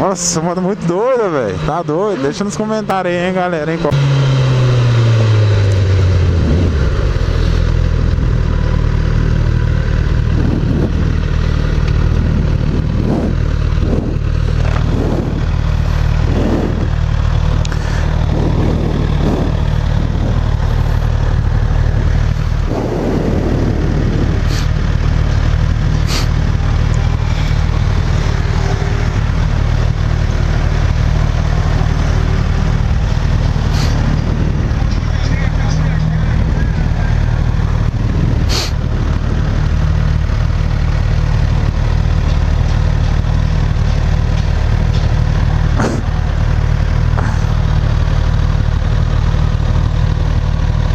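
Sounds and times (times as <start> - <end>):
motorcycle engine cruising: 0.0 - 50.9
wind rushing: 4.3 - 8.3, 12.0 - 17.2, 18.0 - 25.1.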